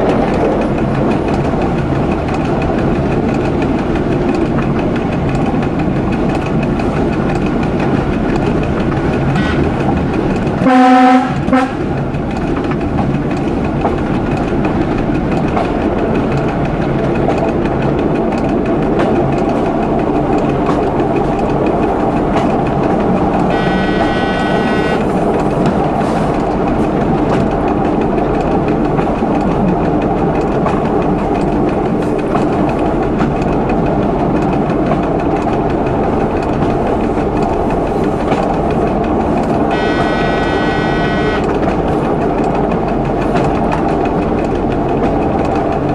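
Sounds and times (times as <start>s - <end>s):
train running rumble: 0.0s - 45.9s
wheel-on-rail noise: 0.0s - 45.9s
train horn blast: 9.4s - 9.8s, 10.6s - 11.9s, 23.4s - 25.2s, 39.7s - 41.6s
higher-pitched tone: 23.5s - 25.0s, 39.7s - 41.5s.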